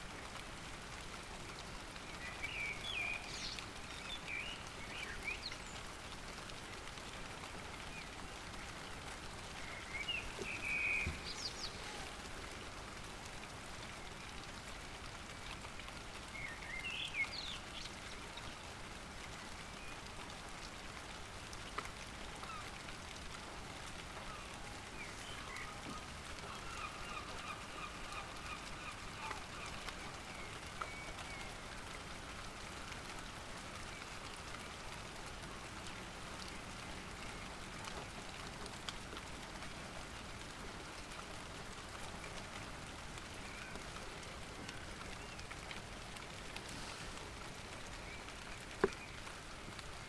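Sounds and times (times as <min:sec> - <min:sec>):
steady rain: 0:00.0 - 0:50.0
bird calls: 0:09.5 - 0:12.2, 0:24.2 - 0:31.5.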